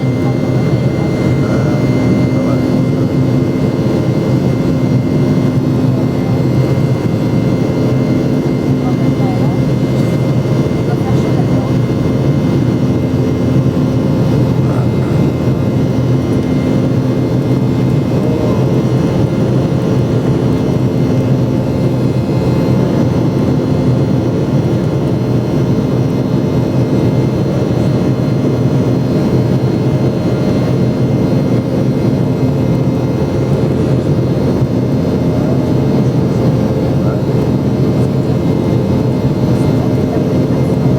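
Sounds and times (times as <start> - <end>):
airliner cabin engine drone: 0.0 - 40.9.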